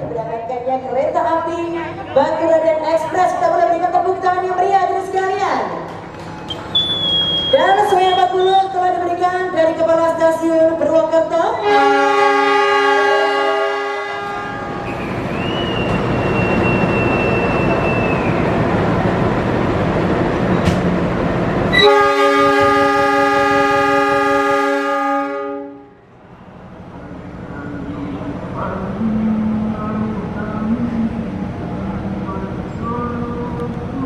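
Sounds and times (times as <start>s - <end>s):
rail and running noise: 0.0s - 34.0s
train rumble: 0.0s - 34.0s
train horn: 11.6s - 15.2s, 21.7s - 26.0s
high steady squeal: 14.8s - 18.5s.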